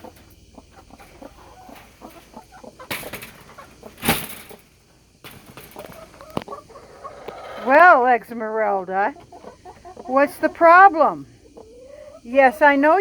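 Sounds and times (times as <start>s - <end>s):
loud rustling: 0.0s - 6.4s
hens clucking quietly: 0.0s - 13.0s.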